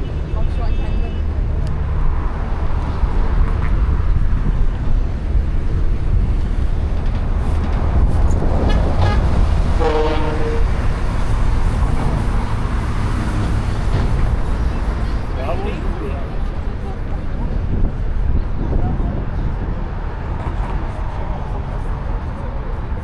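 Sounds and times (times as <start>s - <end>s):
low rumble of passing vehicles: 0.0s - 23.0s
vehicle horn: 8.6s - 11.0s.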